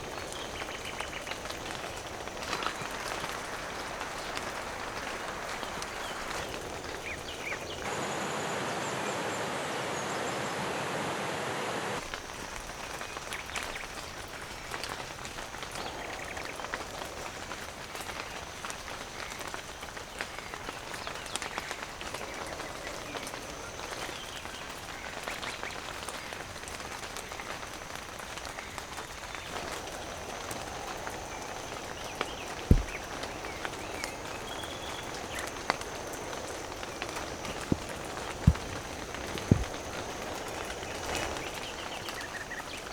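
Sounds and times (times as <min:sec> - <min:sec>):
raindrops ticking: 0:00.0 - 0:07.9, 0:12.0 - 0:42.9
steady rain falling: 0:00.0 - 0:42.9
dull thump: 0:32.7 - 0:33.2.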